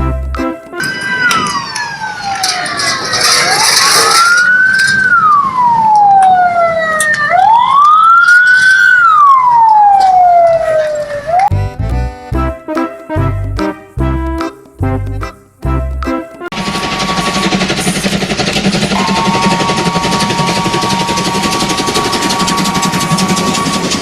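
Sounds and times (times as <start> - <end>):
emergency vehicle siren wailing: 0.8 - 11.5, 18.9 - 24.0.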